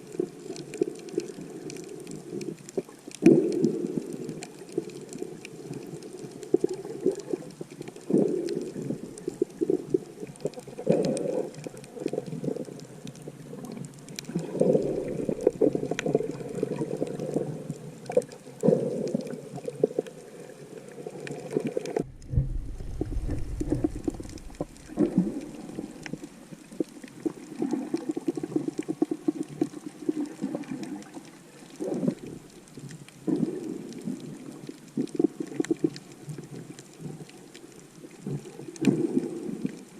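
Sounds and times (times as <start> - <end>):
underwater water sloshing: 0.1 - 39.9
deep low rumble: 22.0 - 26.3.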